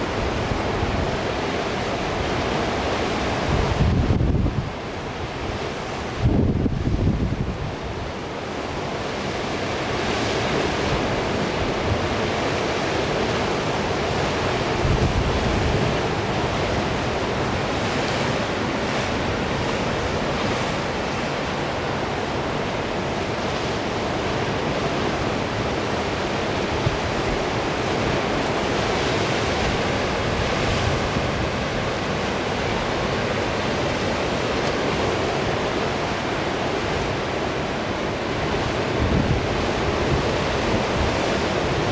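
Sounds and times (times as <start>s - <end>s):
sea surf breaking: 0.0s - 41.9s
wind buffeting microphone: 3.4s - 4.8s, 6.2s - 7.8s, 38.6s - 41.9s.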